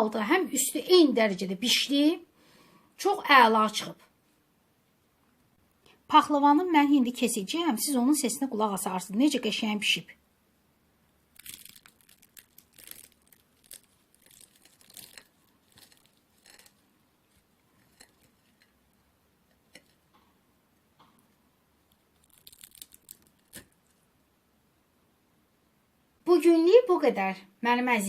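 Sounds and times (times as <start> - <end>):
knife crunching crisp pastry: 11.4 - 20.1, 21.9 - 23.9.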